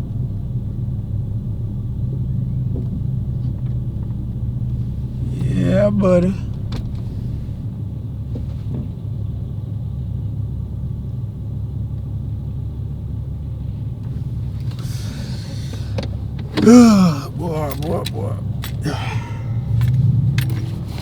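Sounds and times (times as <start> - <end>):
car engine idling: 14.1 - 21.0.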